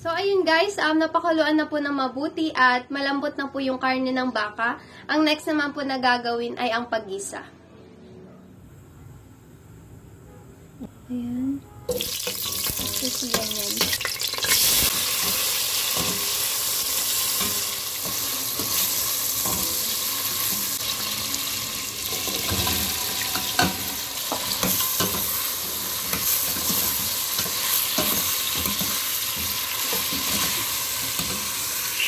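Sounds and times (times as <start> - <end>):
vegetables sizzling in hot oil: 11.9 - 32.0.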